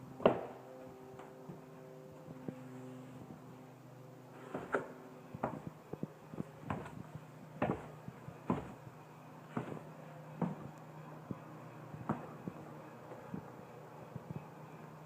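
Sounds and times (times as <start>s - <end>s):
faint steady hum: 0.0s - 15.0s
footsteps on hard floor: 5.4s - 8.9s, 9.5s - 10.8s, 12.0s - 12.6s.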